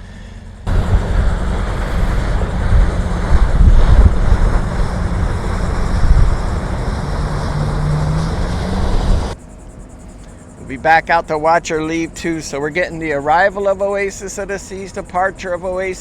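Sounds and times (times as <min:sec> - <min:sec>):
low steady hum: 0:00.0 - 0:16.0
wind buffeting microphone: 0:00.6 - 0:09.4
waves rushing: 0:00.7 - 0:09.4.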